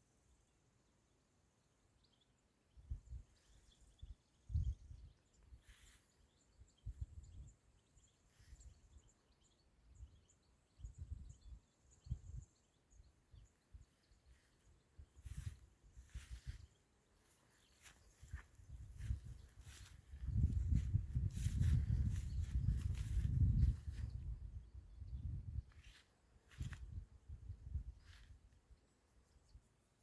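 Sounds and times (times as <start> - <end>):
faint high bird chirps: 1.8 - 30.0
wind buffeting microphone: 18.2 - 25.8.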